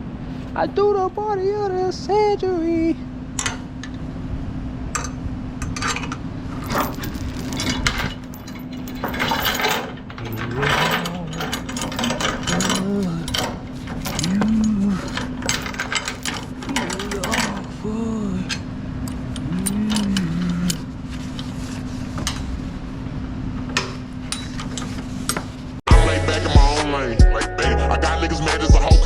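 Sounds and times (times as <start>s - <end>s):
man singing: 0.8s - 3.0s, 10.2s - 11.7s, 25.9s - 29.0s
metal chains clinking: 5.9s - 22.6s.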